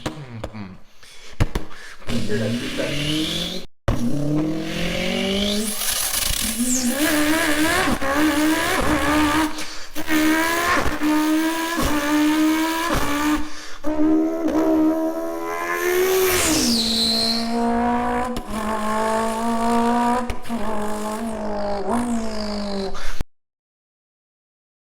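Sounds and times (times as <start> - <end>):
person imitating car engine: 0.0 - 0.9.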